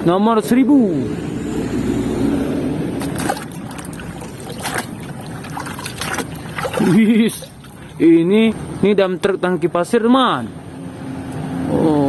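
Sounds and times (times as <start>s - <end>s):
water sloshing and trickling: 2.9s - 8.2s.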